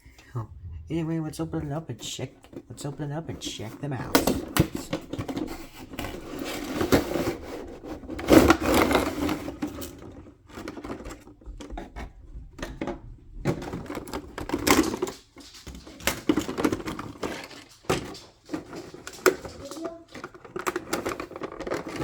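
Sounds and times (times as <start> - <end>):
packaging rustling and tearing: 13.8 - 22.0.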